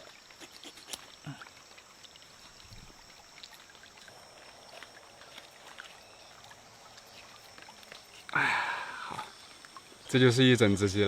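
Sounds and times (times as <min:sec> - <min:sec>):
high-pitched insect drone: 0:00.4 - 0:11.0.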